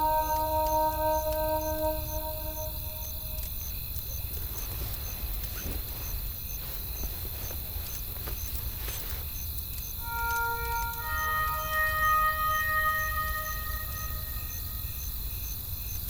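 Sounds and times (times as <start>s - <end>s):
faint high chirp: 0.0s - 3.5s, 10.0s - 15.0s.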